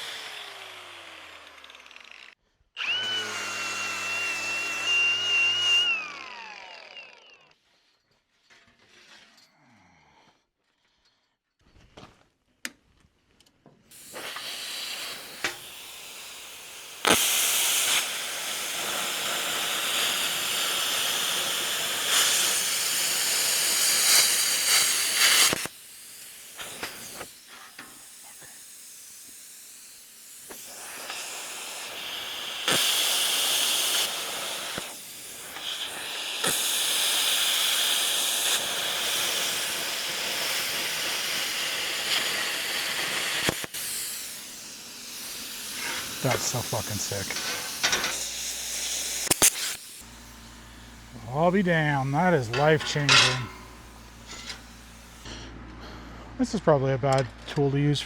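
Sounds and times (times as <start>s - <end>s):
loud hiss of pressurized air: 13.9s - 55.4s.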